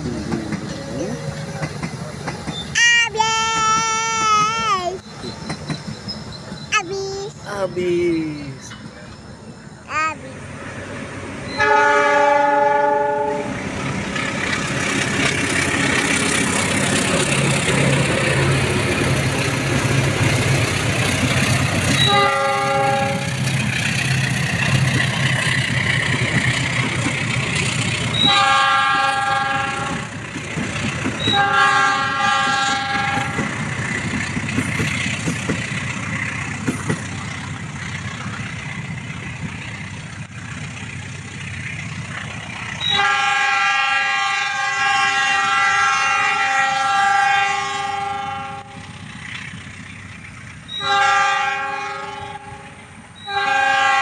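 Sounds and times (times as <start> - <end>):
coaches rolling on rails: 0.0 - 54.0
locomotive horn: 11.6 - 13.6, 22.0 - 23.4, 28.2 - 30.2, 31.3 - 33.5, 42.8 - 48.9, 50.8 - 54.0.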